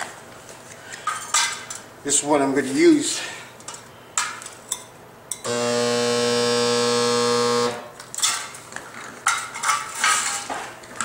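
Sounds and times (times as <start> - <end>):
spot welder buzzing: 5.5 - 7.9
metal sheet clanking and rattling: 9.2 - 10.7.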